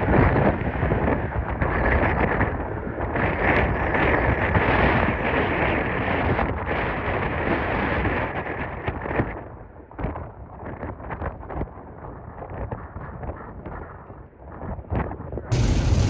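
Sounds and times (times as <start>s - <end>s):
strong wind buffeting microphone: 15.5s - 16.0s.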